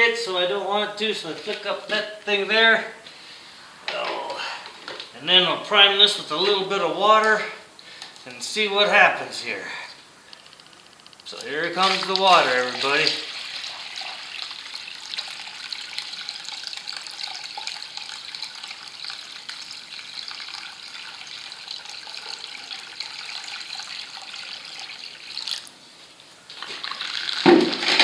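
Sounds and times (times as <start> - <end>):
water pouring into pump: 11.3 - 25.7, 26.6 - 28.0.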